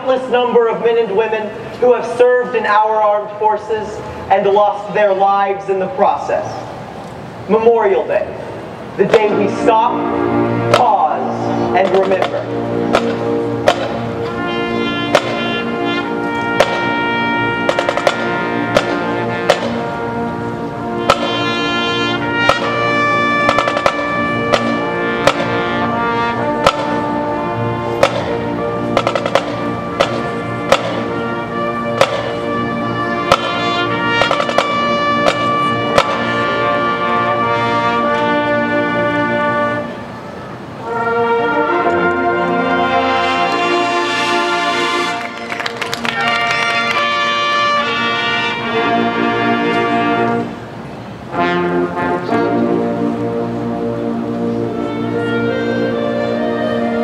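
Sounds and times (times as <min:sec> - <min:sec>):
brass band playing held chords: 0:00.0 - 0:57.0
sharp drum hits: 0:12.1 - 0:14.0, 0:15.1 - 0:15.4, 0:16.6 - 0:16.9, 0:17.7 - 0:19.8, 0:21.0 - 0:21.4, 0:23.5 - 0:25.5, 0:26.6 - 0:27.0, 0:28.0 - 0:28.4, 0:29.0 - 0:31.1, 0:32.0 - 0:32.4, 0:34.2 - 0:36.3.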